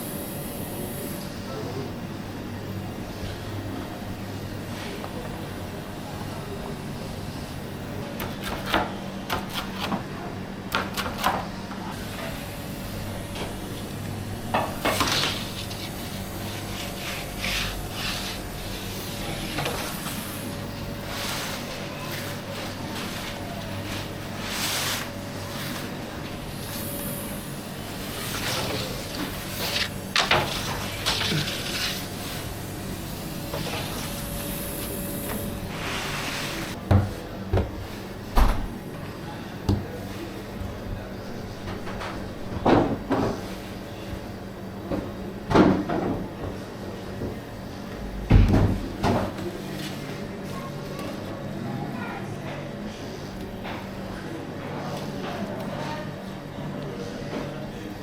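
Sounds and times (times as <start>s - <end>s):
steady low hum: 11.5s - 45.5s
soft scraping and shuffling: 21.0s - 26.1s.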